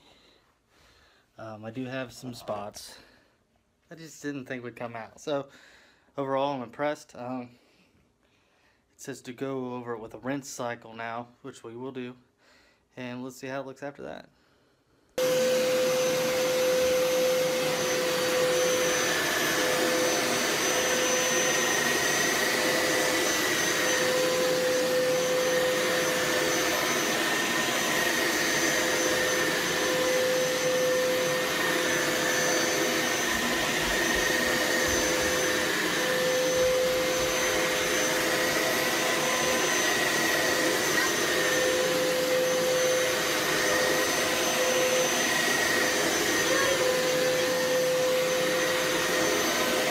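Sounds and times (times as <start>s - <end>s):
carpet cleaner motor whine: 15.2s - 49.9s.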